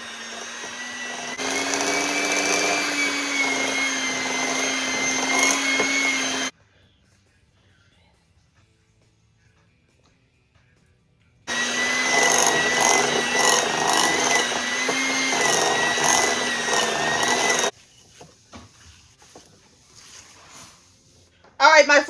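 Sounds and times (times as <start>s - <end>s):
electric hand mixer whining: 0.0s - 6.5s, 11.5s - 17.7s
spatula scraping bowl: 0.0s - 6.5s, 11.5s - 17.8s.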